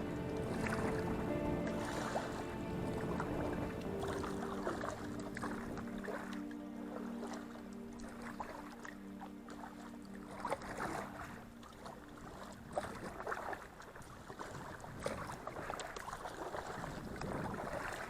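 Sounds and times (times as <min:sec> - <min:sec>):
soft background music: 0:00.0 - 0:14.4
paddle strokes splashing water: 0:00.0 - 0:18.0
water washing along hull: 0:00.0 - 0:18.0.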